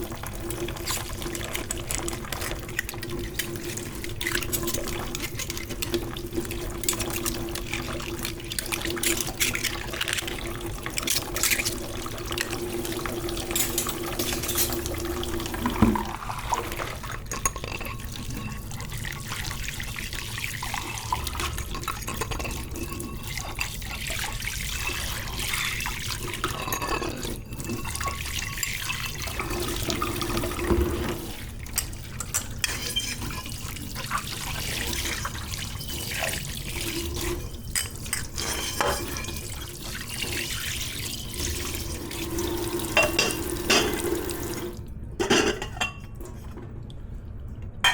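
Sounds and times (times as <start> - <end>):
tap water running into sink: 0.0 - 26.6, 27.9 - 44.8
dishes knocking and clinking: 42.9 - 44.1, 45.2 - 46.2.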